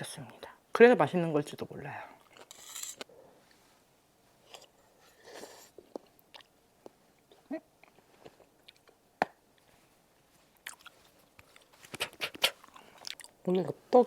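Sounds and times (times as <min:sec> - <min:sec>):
person chewing close up: 0:05.9 - 0:06.6, 0:07.2 - 0:09.0, 0:10.5 - 0:13.4.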